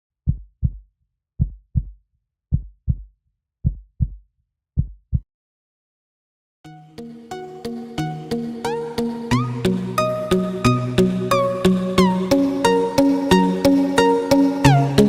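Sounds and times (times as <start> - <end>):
heartbeat thumps: 0.2 - 0.8, 1.4 - 4.2, 4.8 - 5.2
music: 6.6 - 15.0.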